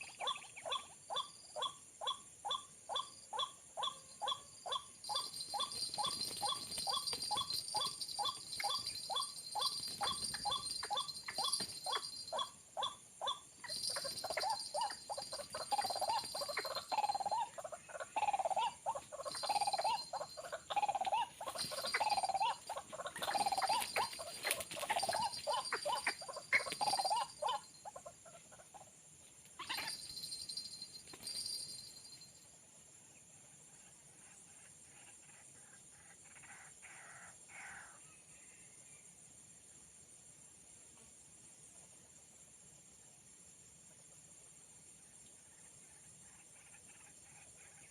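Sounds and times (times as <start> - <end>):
waterhen calling: 13.6 - 27.7.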